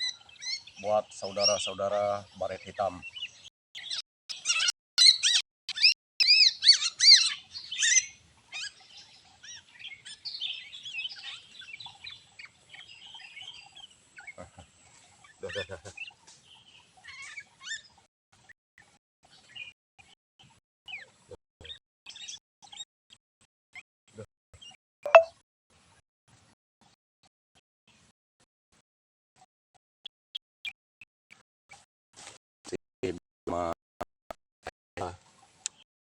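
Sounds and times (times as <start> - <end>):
small birds chirping: 0.0 - 25.3, 35.0 - 35.9.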